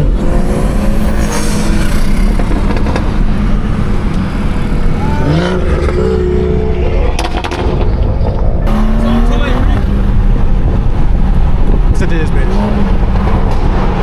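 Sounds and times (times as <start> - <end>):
engine revving: 0.0 - 7.8, 8.6 - 14.0
car engine rumbling: 0.0 - 14.0.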